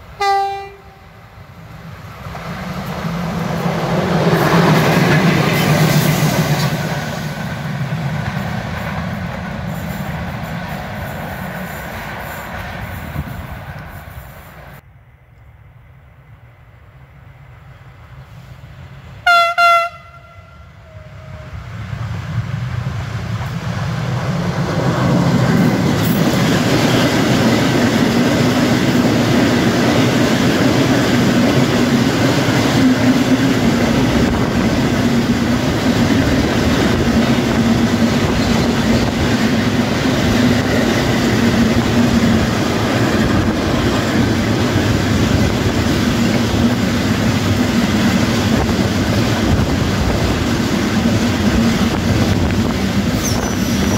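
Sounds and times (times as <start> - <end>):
train wheels rumbling on rails: 0.0 - 14.8, 16.7 - 53.9
train horn blast: 0.2 - 1.2, 19.2 - 21.6.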